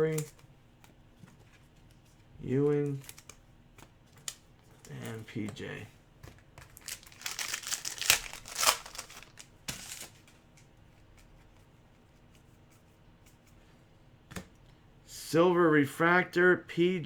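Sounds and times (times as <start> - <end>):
card pack wrapper crinkling and tearing: 6.7 - 10.2.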